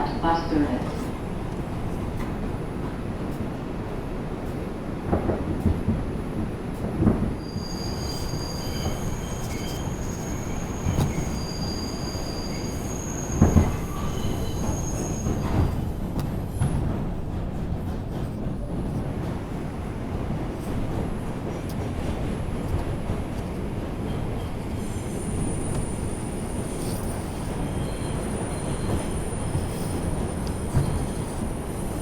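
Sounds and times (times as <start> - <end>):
subway train rumbling: 0.0 - 32.0
high-pitched wheel squeal: 7.4 - 15.7.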